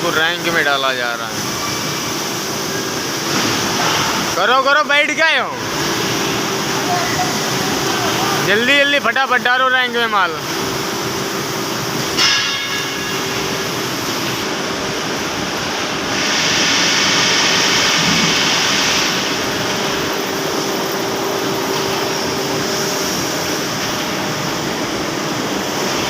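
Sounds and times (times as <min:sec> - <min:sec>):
factory machinery humming: 0:00.0 - 0:26.0
loud hiss: 0:15.4 - 0:24.1.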